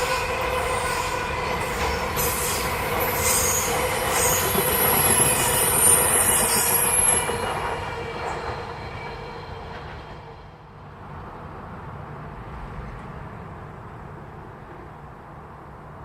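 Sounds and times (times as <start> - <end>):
train wheel squeal: 0.0 - 10.6
train passing: 0.0 - 16.0.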